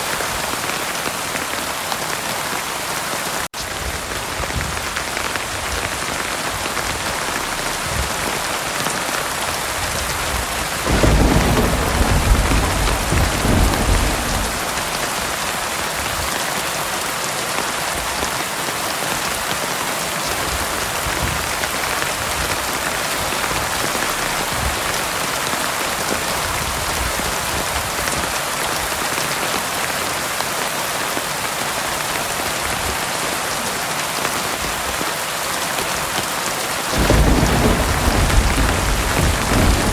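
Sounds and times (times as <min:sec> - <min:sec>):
heavy rain falling: 0:00.0 - 0:39.9
low rumble of thunder: 0:09.4 - 0:16.3, 0:37.0 - 0:39.9.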